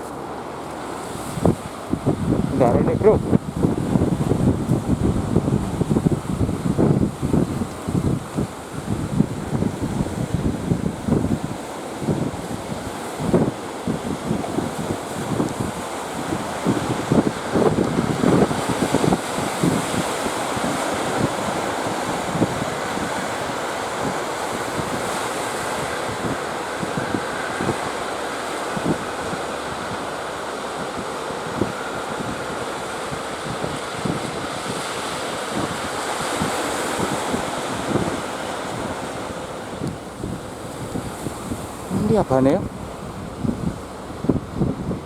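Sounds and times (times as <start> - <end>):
sea waves breaking: 0.0 - 45.0
wind buffeting microphone: 0.0 - 45.0.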